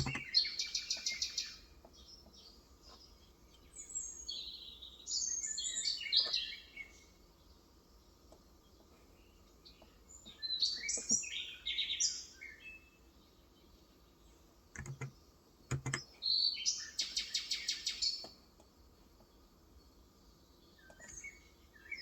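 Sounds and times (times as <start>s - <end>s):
soft keyboard keystrokes: 0.0s - 0.2s, 14.8s - 15.1s, 15.7s - 16.0s
small birds chirping: 0.0s - 22.0s.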